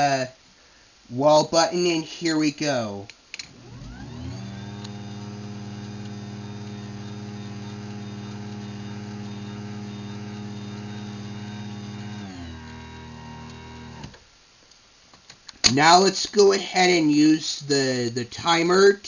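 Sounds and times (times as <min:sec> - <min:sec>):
garage door opener motor hum: 0:03.5 - 0:14.2.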